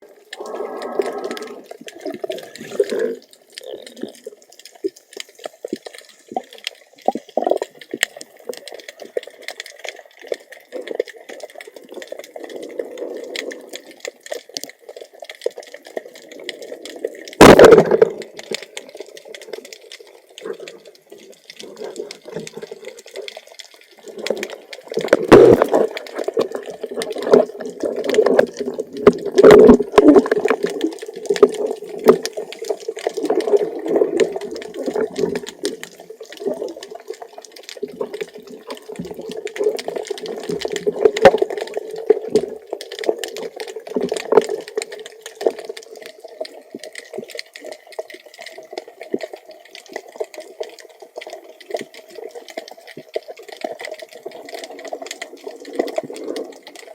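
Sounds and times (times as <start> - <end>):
sharp underwater clicks and crackles: 0.0 - 56.9
underwater gurgling and bubbling: 0.0 - 56.9.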